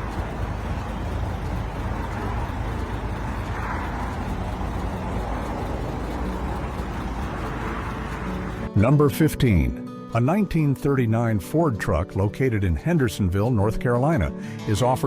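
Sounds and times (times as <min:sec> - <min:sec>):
truck engine running steadily: 0:00.0 - 0:08.8.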